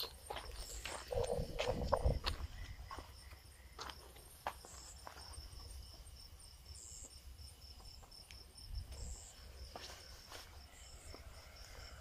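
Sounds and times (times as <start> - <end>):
soft footsteps on road: 0.0 - 6.1, 7.0 - 12.0
crickets chirping: 0.0 - 12.0
wind rumble on microphone: 0.7 - 2.9.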